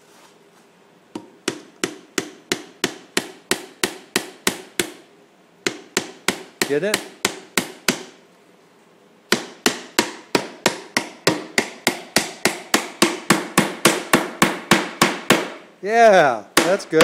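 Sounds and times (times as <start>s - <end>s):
hammer driving nail into wood: 1.2s - 5.0s, 5.6s - 8.2s, 9.3s - 15.6s.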